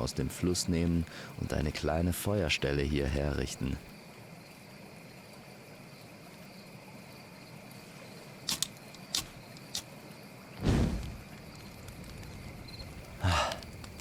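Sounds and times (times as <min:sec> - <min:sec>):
insect chirring: 0:00.0 - 0:14.0
short sharp clicks: 0:08.5 - 0:09.9
thump with low rumble: 0:10.6 - 0:11.3.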